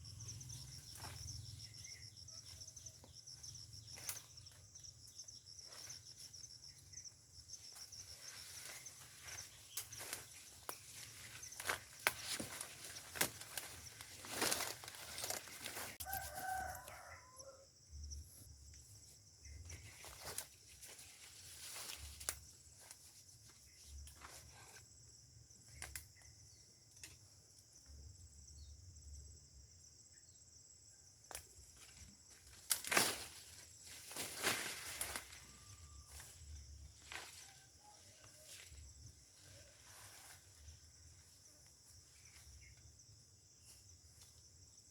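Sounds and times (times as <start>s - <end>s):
rustling: 7.7s - 16.5s, 32.4s - 37.8s
rooster crowing: 16.0s - 17.7s.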